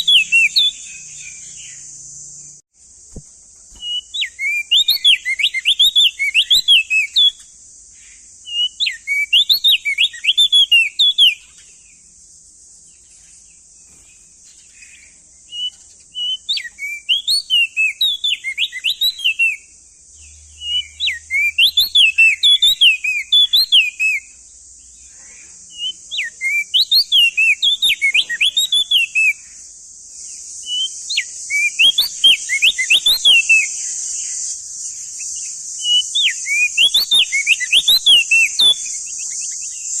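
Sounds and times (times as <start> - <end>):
bird singing whistled phrases: 0.0 - 1.9, 3.7 - 7.5, 8.4 - 11.7, 14.8 - 19.7, 20.3 - 24.4, 25.7 - 29.6, 30.6 - 40.0
steady high hiss: 0.0 - 40.0.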